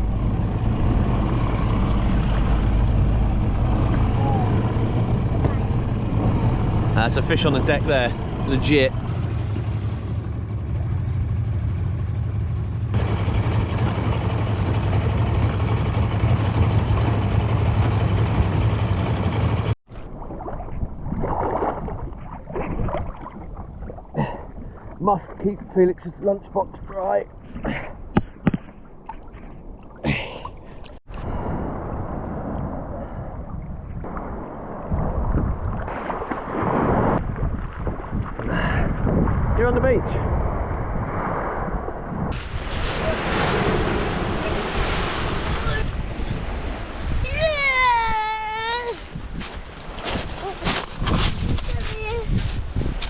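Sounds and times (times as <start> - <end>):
motorboat engine humming: 0.0 - 19.8
water and wind rushing: 0.0 - 53.0.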